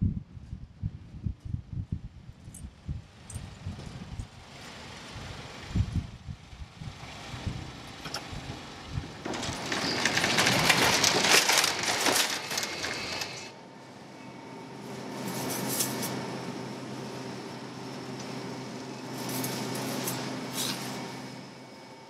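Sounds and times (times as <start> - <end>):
shopping cart rattling: 9.2 - 13.5
steady hum: 10.8 - 22.0.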